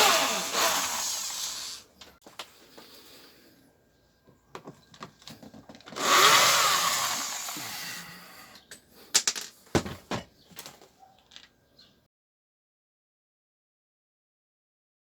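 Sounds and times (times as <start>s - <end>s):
power screwdriver whirring: 0.0s - 1.8s, 5.9s - 8.0s.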